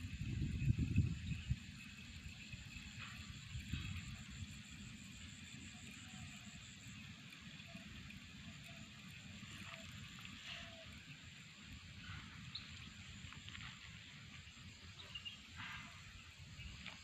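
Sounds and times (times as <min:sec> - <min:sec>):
faint bird chirps: 0:07.5 - 0:11.1, 0:14.7 - 0:17.0.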